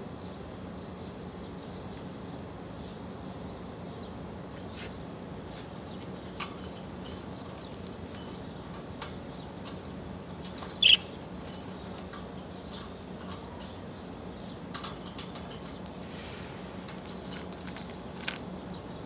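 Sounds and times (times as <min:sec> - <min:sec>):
high bird chirp: 0:02.9 - 0:19.0
birds clicking and tapping in cage: 0:04.5 - 0:19.0.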